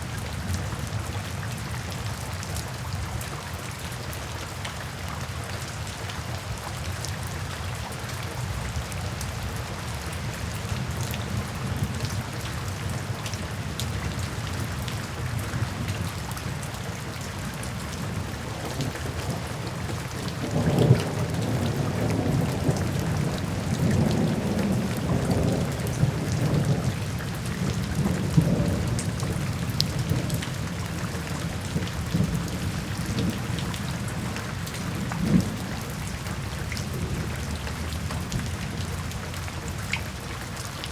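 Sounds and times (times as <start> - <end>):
steady rain: 0.0 - 40.9
thunder rumbling and cracking: 17.3 - 39.0.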